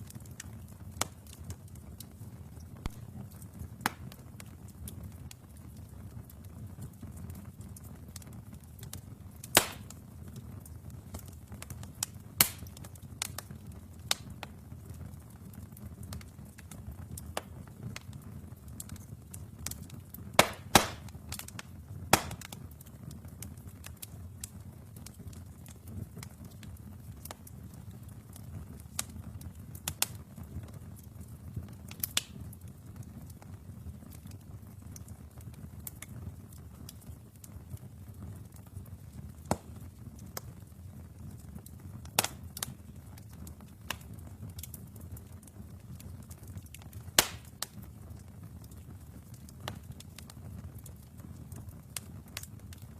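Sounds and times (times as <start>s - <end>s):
fire flames rumbling: 0.0s - 52.9s
wood fire crackling and popping: 0.0s - 52.9s
loud wood snaps: 9.5s - 9.9s, 12.4s - 12.7s, 20.4s - 21.4s, 22.1s - 22.6s, 39.5s - 39.7s, 42.2s - 42.4s, 47.2s - 47.7s.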